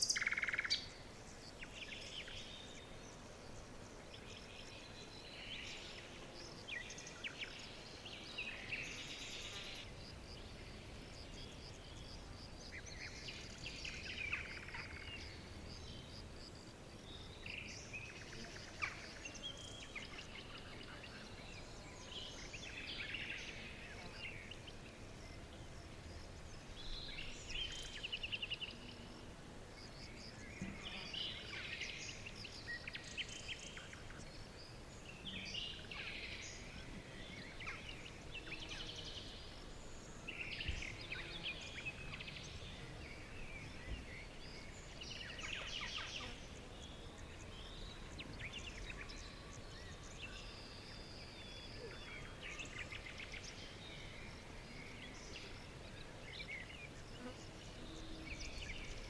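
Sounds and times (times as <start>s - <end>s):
forest ambience hiss: 0.0s - 59.0s
songbirds chirping and trilling: 0.0s - 59.0s.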